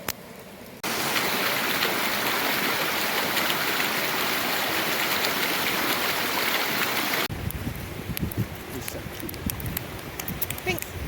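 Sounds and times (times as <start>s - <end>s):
stream rushing over rocks: 0.1s - 7.4s.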